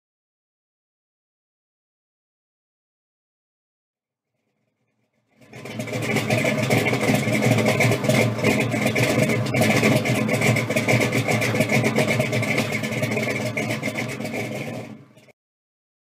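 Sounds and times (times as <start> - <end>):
car engine running: 5.2 - 15.3.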